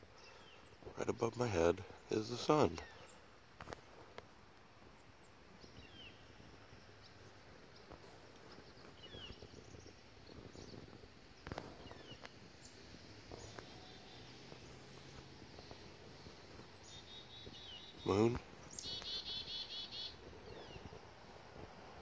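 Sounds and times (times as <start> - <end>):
high bird chirps: 16.8 - 21.0.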